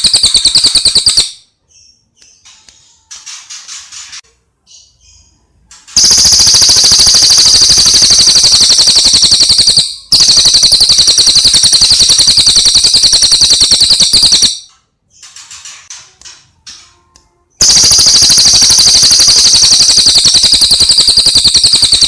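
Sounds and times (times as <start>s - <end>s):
songbird rapid rattling trill: 6.0s - 14.6s, 17.6s - 22.0s.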